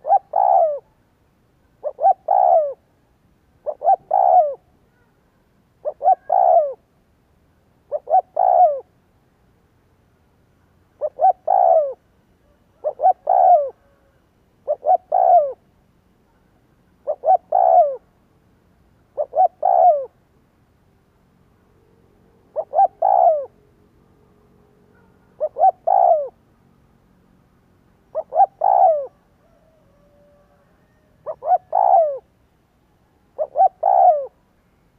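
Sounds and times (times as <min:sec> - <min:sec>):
dove cooing: 0:00.0 - 0:01.0, 0:01.8 - 0:02.9, 0:03.6 - 0:05.1, 0:05.8 - 0:06.9, 0:07.9 - 0:08.9, 0:11.0 - 0:15.7, 0:17.0 - 0:18.1, 0:19.2 - 0:20.2, 0:22.4 - 0:23.6, 0:24.9 - 0:26.4, 0:28.1 - 0:32.3, 0:33.3 - 0:34.4.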